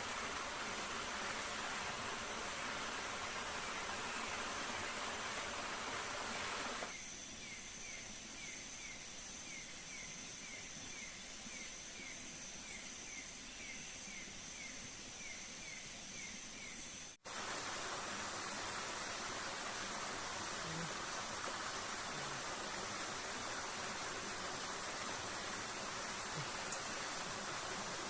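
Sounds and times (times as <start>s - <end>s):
waterfall rushing: 0.0s - 6.9s, 17.3s - 28.0s
insect drone: 0.0s - 28.0s.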